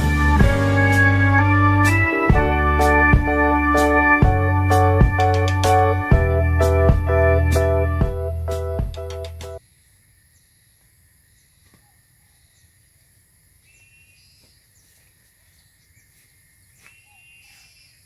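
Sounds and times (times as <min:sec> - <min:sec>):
high insect hum: 0:09.6 - 0:18.0.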